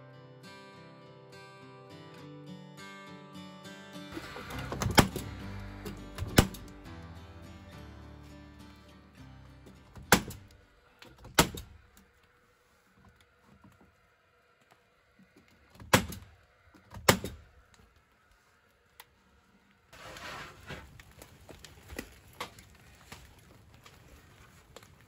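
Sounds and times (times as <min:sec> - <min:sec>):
nail gun firing into wood: 0:06.2 - 0:06.6, 0:10.0 - 0:10.4, 0:11.2 - 0:11.8, 0:15.8 - 0:16.3, 0:16.9 - 0:17.4.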